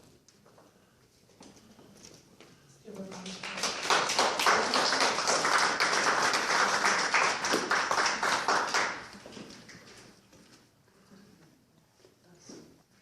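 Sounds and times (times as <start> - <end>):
audience clapping: 3.0 - 10.0.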